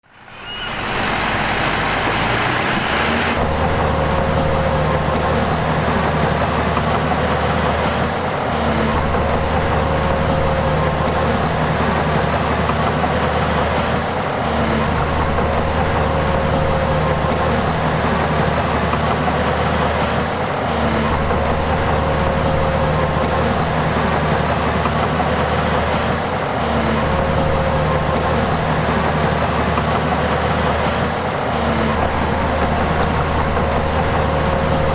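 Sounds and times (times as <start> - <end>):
diesel machinery engine drone: 0.0 - 3.4
short hiss: 0.0 - 3.4.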